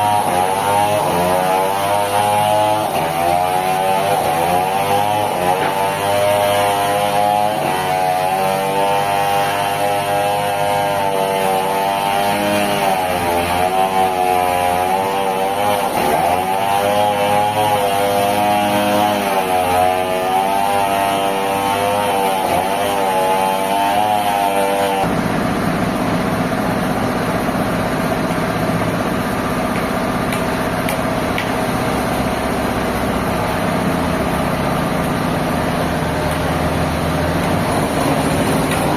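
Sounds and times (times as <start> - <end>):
sawmill machinery running: 0.0 - 38.9
noisy steady machine: 22.4 - 38.9.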